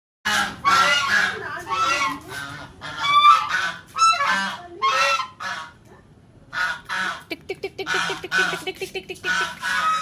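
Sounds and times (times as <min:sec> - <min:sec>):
large bird honking calls: 0:00.3 - 0:05.8, 0:09.3 - 0:10.0.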